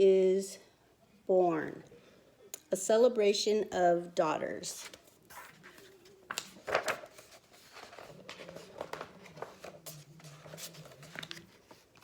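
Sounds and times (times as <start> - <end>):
book pages rustling: 4.8 - 12.0.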